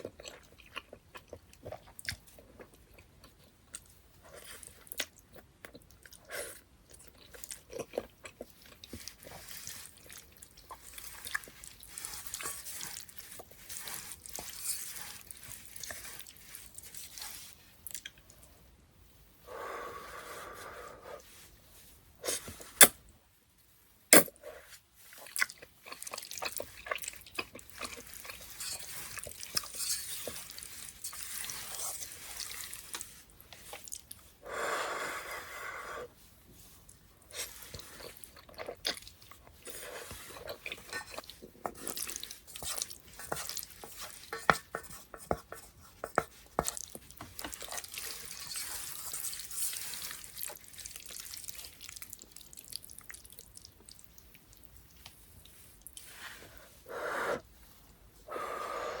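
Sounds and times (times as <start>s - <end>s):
metal utensils scraping in pot: 29.6s - 31.3s.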